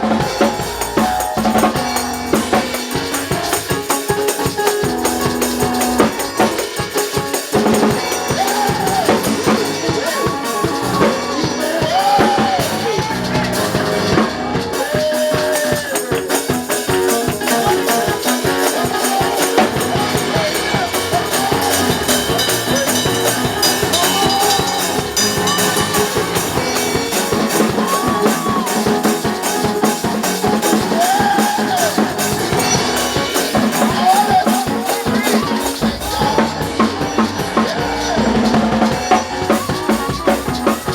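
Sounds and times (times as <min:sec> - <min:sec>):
gliding melodic lines: 0:00.0 - 0:12.2, 0:17.2 - 0:31.0
drum kit beat: 0:00.0 - 0:40.9
tambourine: 0:00.1 - 0:40.9.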